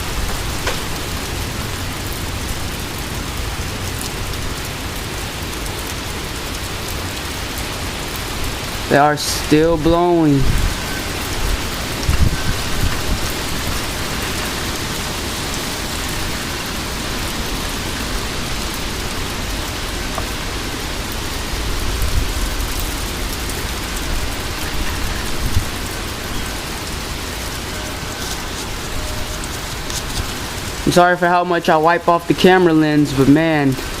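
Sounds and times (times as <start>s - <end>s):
heavy rain hissing: 0.0s - 34.0s
wind gusts on microphone: 8.3s - 30.9s.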